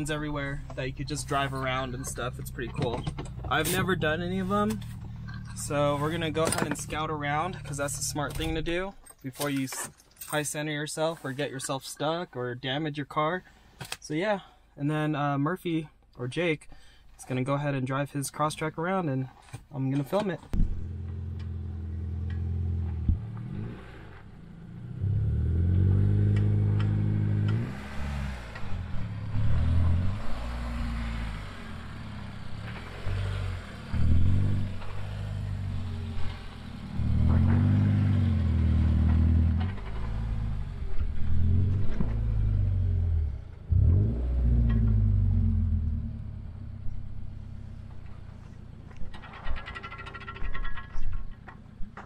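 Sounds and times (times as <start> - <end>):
car engine revving: 0.0 - 8.4, 20.6 - 48.5
knocks and clatters: 0.6 - 4.0, 38.7 - 42.3, 47.8 - 52.0.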